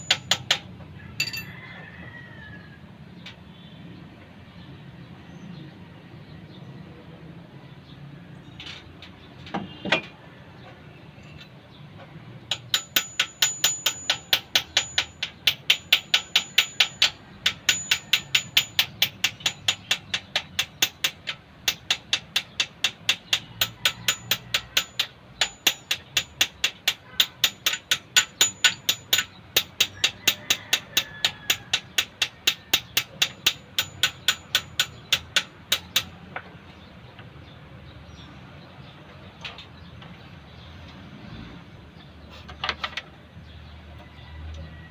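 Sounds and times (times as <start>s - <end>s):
hammer striking metal: 0.0s - 1.5s, 12.5s - 36.2s.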